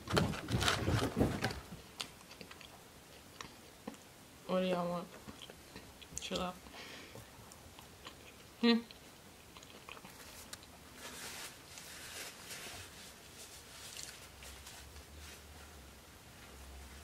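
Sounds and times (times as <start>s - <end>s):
chewing fries: 1.9s - 4.1s, 7.5s - 10.9s.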